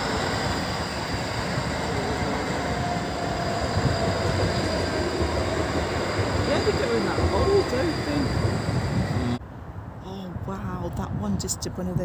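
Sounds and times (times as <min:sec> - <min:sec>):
train rumbling: 0:00.0 - 0:09.4.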